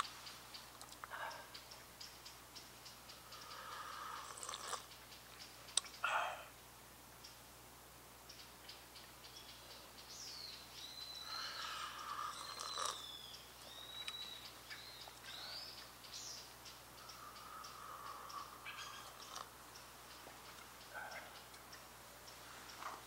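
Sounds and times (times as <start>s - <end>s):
birds whistling calls: 2.9s - 6.3s, 8.4s - 20.2s.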